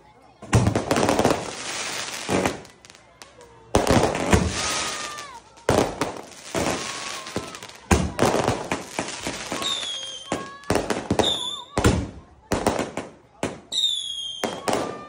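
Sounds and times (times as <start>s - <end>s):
fireworks booming and hissing: 0.4s - 15.0s
firework whistles: 6.4s - 12.1s, 13.7s - 15.0s.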